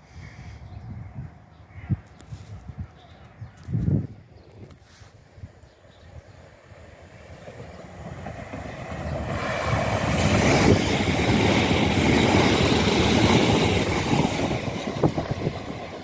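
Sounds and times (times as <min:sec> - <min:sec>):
train passing on rails: 0:04.9 - 0:16.0.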